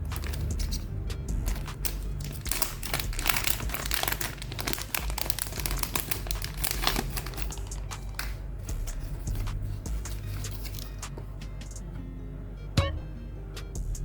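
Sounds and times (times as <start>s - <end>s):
packaging crinkling: 0.0s - 11.1s.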